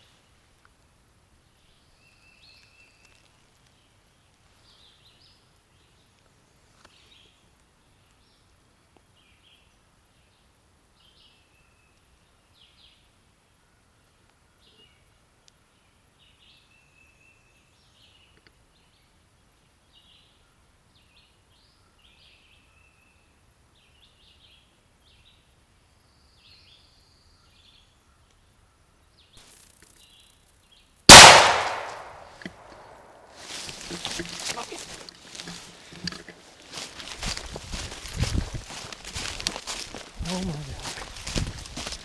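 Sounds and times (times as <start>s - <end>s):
loud shotgun shot: 31.1s - 33.0s
songbirds chirping: 31.1s - 42.0s.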